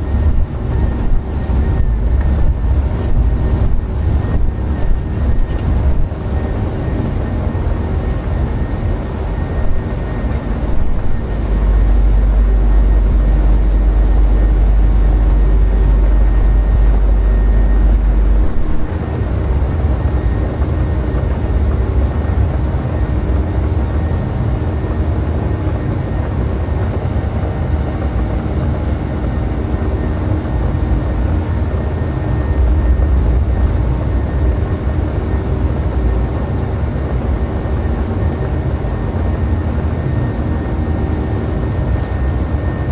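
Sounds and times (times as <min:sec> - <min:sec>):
deep low rumble: 0:00.0 - 0:22.3, 0:31.0 - 0:38.2
jet engines running: 0:00.0 - 0:42.9.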